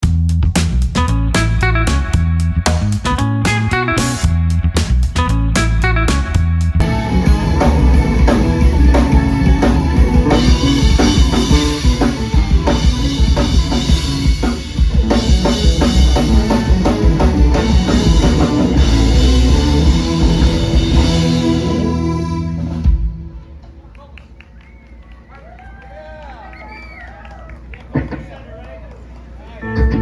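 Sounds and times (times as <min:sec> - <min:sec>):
drum kit beat: 0:00.0 - 0:23.4
rock band playing live: 0:00.0 - 0:23.6, 0:29.6 - 0:30.0.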